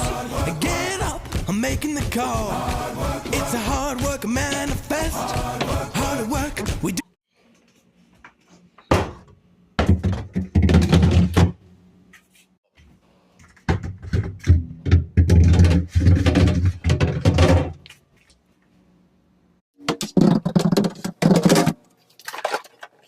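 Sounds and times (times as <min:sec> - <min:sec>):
objects thunking and clattering: 0:08.8 - 0:11.6, 0:13.4 - 0:17.8, 0:19.8 - 0:21.8.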